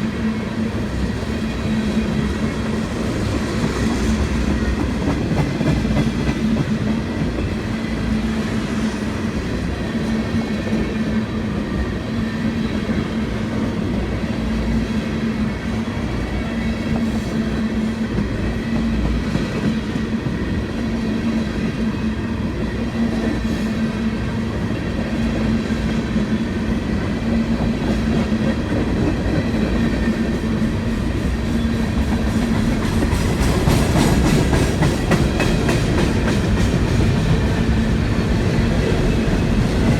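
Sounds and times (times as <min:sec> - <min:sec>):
freight train cars rolling past: 0:00.0 - 0:39.9.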